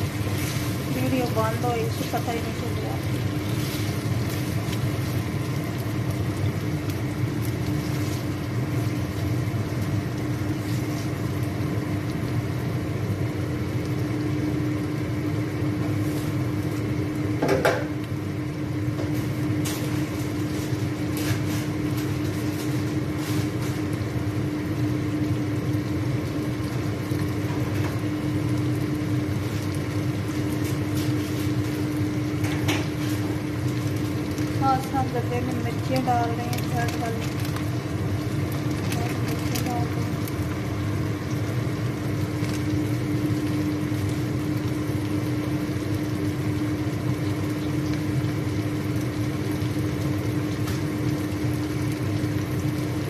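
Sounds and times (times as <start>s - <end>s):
chicken frying in oil: 0.0s - 53.0s
steady low hum: 0.0s - 53.0s.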